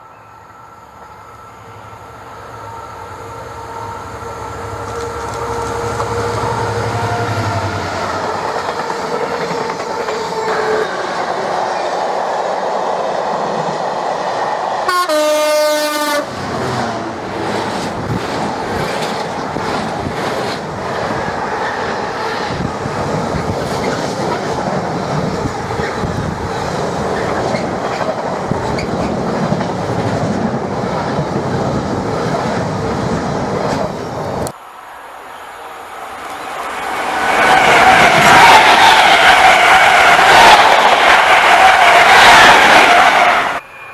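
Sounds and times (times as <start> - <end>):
train wheels clacking on rails: 4.8 - 12.2, 17.4 - 34.1
train horn blast: 14.8 - 16.8.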